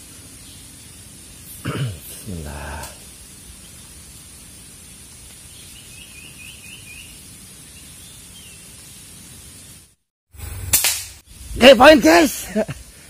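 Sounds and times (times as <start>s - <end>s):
steady high hiss: 0.0s - 13.0s
small bird chirping: 3.5s - 9.8s.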